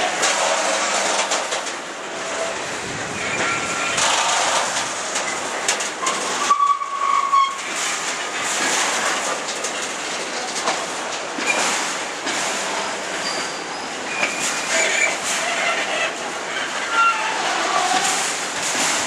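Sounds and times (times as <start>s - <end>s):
freight train wheels clattering: 0.0s - 19.0s
high wheel squeals: 3.1s - 4.0s, 6.0s - 7.6s, 12.8s - 18.1s.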